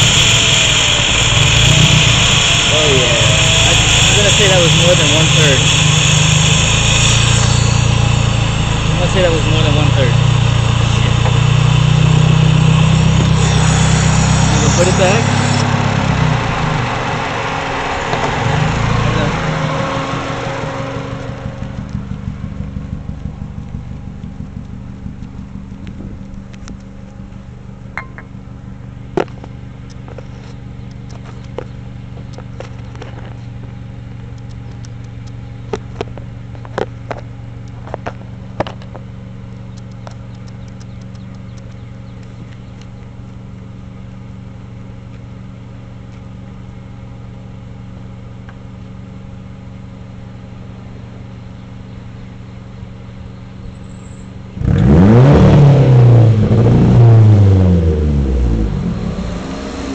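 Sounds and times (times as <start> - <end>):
car engine idling: 0.0 - 59.9
sharp clicks: 34.2 - 36.2, 39.6 - 43.1.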